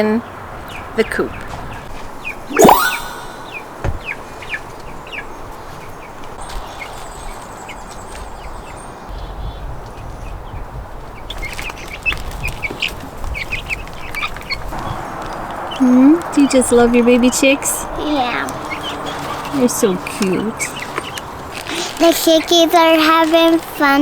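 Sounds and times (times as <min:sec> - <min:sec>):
baby chicks peeping: 0:18.1 - 0:22.6.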